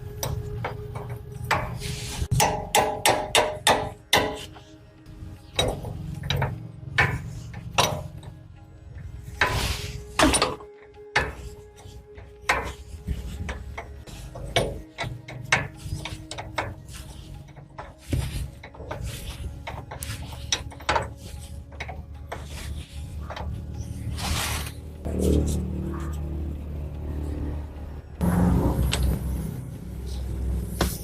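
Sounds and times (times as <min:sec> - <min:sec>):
tools clattering on metal: 0:05.4 - 0:08.4, 0:09.4 - 0:23.8.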